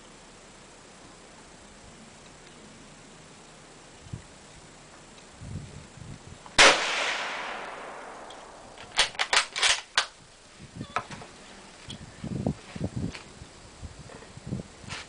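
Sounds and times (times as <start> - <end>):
rifle shot with echo: 6.6 - 9.8.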